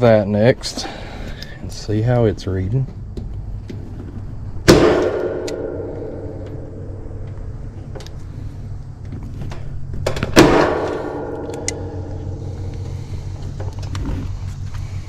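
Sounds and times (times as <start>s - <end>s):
steady low hum: 0.0s - 15.0s
sharp metallic clank: 4.7s - 7.2s, 10.3s - 13.1s.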